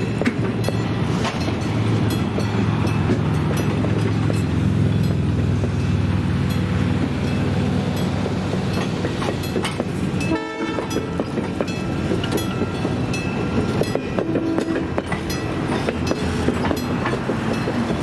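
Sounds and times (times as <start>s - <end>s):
train wheels clattering over rail joints: 0.0s - 18.0s
train horn blast: 10.2s - 11.3s, 14.1s - 15.0s.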